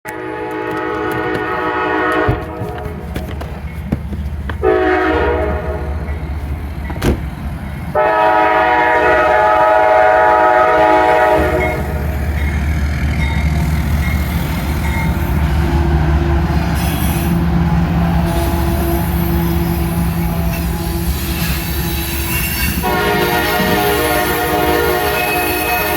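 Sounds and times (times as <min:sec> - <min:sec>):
locomotive air horn blasts: 0:00.1 - 0:03.0, 0:04.6 - 0:06.1, 0:08.0 - 0:12.1, 0:18.2 - 0:25.9
locomotive engine drone: 0:00.1 - 0:25.9
train wheels rumbling: 0:00.1 - 0:25.9.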